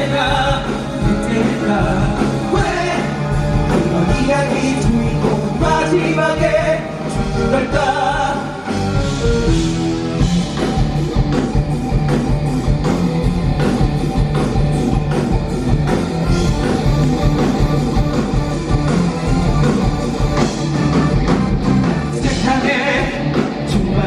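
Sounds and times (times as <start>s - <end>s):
bass guitar: 0.0s - 24.0s
drum kit: 0.0s - 24.0s
electric guitar: 0.0s - 24.0s.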